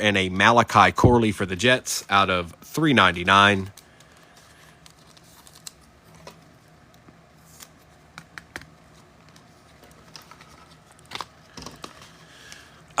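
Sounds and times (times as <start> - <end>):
cards tapping and rustling: 7.6 - 12.2.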